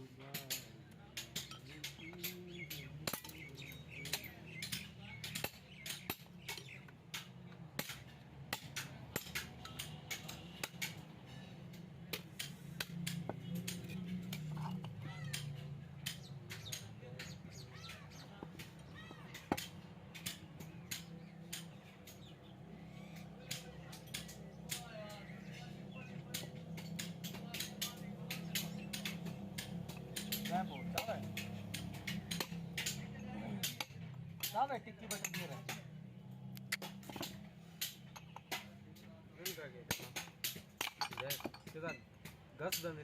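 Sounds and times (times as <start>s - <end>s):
birds chirping: 1.2s - 8.1s, 9.2s - 40.0s
metal knocks and clinks: 13.0s - 16.8s, 39.9s - 43.0s.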